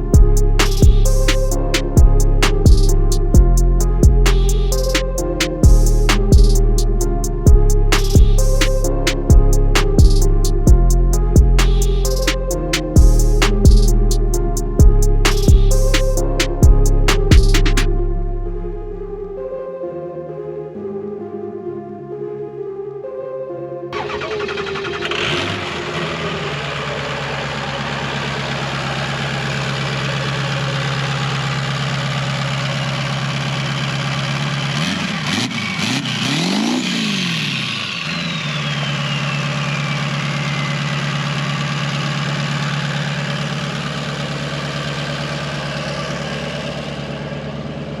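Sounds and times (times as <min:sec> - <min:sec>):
truck engine revving: 0:00.0 - 0:18.0, 0:24.0 - 0:48.0
truck engine idling: 0:00.0 - 0:18.2, 0:24.0 - 0:48.0
high falling whistle: 0:37.5 - 0:41.3.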